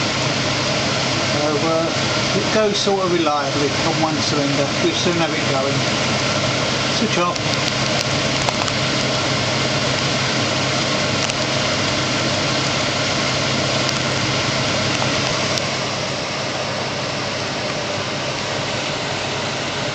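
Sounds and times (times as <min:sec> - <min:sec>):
hot-air engine running: 0:00.0 - 0:19.9.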